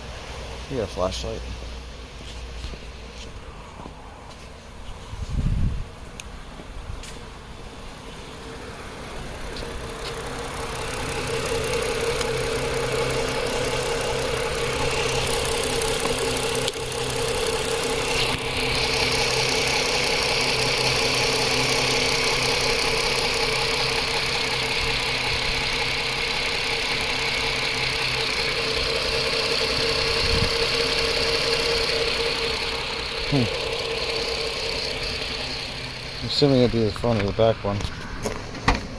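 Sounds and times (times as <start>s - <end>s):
high hiss: 7.2s - 38.2s
car engine idling with misfire: 7.2s - 38.9s.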